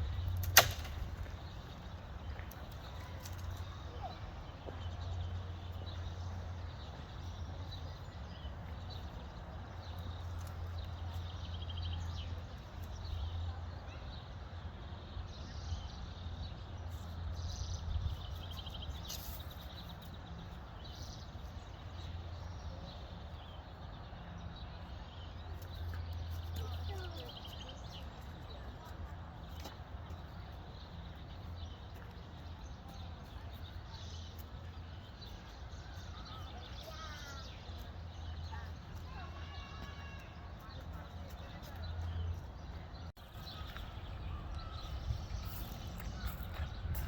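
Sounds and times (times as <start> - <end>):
small birds chirping and trilling: 0.0 - 47.0.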